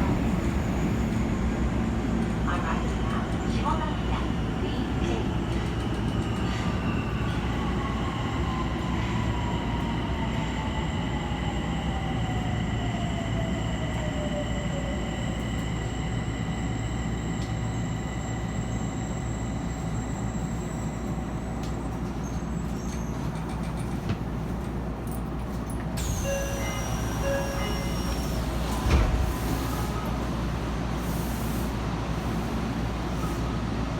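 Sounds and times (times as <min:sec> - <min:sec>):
train wheels rumbling on rail: 0:00.0 - 0:33.9
train motor whine: 0:26.0 - 0:30.1.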